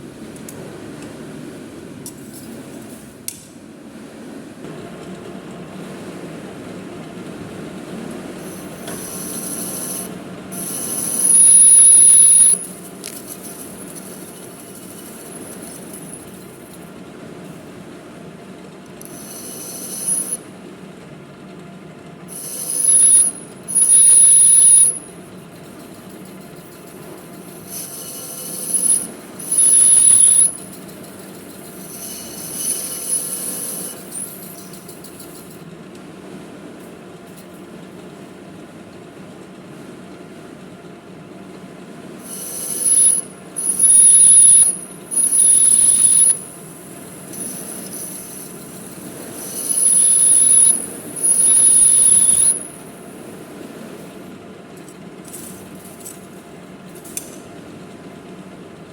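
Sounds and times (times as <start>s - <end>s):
metal lathe running: 8.3s - 17.0s, 19.0s - 20.6s, 22.3s - 35.7s, 42.2s - 54.3s
cutting tool squealing: 8.4s - 16.9s, 19.0s - 20.5s, 22.3s - 35.6s, 42.2s - 53.1s.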